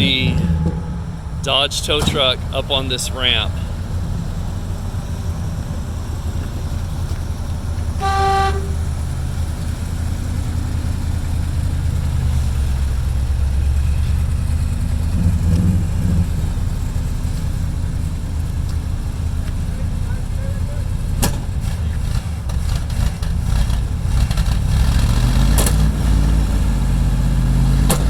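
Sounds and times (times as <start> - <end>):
truck engine rumbling: 0.0 - 28.0
short horn toot: 8.0 - 9.0.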